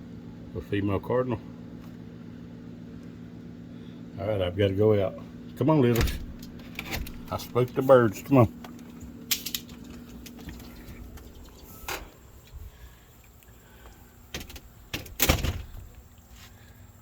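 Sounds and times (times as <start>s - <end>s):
steady low hum: 0.0s - 17.0s
door knocks and clunks: 6.0s - 7.4s, 14.3s - 16.0s.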